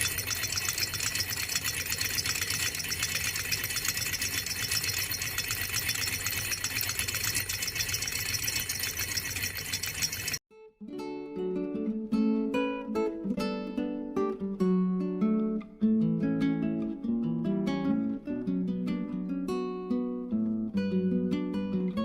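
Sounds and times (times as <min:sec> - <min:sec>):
small engine mechanical rattle: 0:00.0 - 0:10.4.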